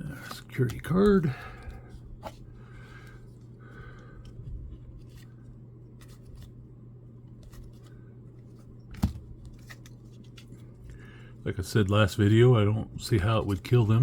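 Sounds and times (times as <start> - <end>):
steady low hum: 0.0 - 14.0
cards ticking and rustling: 0.1 - 1.8, 7.3 - 11.3.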